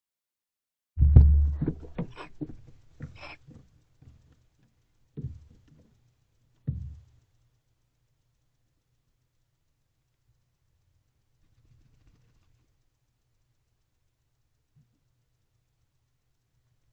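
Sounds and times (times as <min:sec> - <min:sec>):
thumps on wooden floor: 0:01.0 - 0:04.2, 0:05.2 - 0:05.8, 0:06.7 - 0:07.1.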